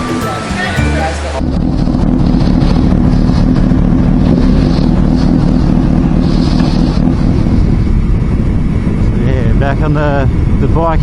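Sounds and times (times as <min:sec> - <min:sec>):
motorcycle engine: 0:00.0 - 0:10.7
wind rushing over microphone: 0:01.4 - 0:11.0.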